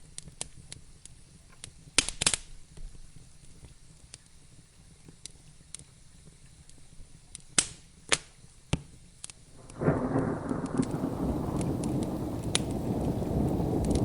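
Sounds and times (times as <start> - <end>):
wood fire crackling: 0.0 - 14.0
thunder rumbling: 9.6 - 14.0.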